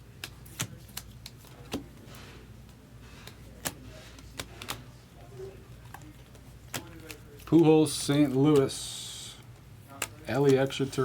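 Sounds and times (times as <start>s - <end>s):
faint card rustling: 0.2s - 11.0s
trading cards clicking: 9.5s - 10.8s.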